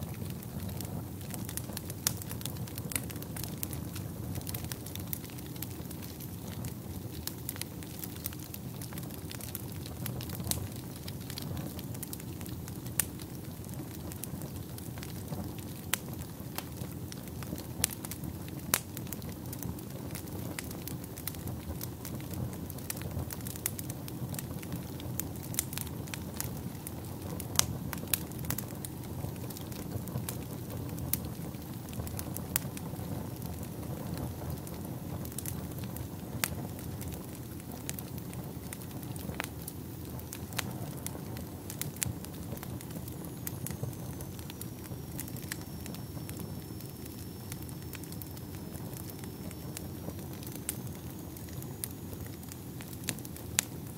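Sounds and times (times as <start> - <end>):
fire crackling: 0.0 - 53.9
low rumble of flames: 0.0 - 53.9
sharp pops of fire: 0.0 - 53.9.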